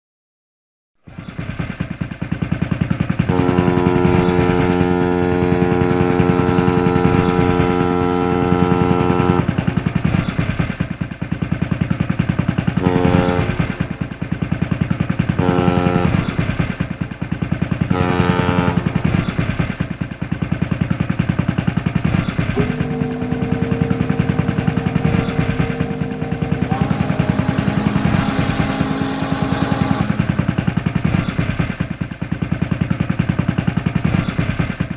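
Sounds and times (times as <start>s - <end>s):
ship engine throbbing: 1.3s - 34.9s
pitched horn tones: 3.3s - 10.0s, 12.8s - 14.2s, 15.3s - 16.6s, 17.8s - 19.4s, 22.6s - 31.3s.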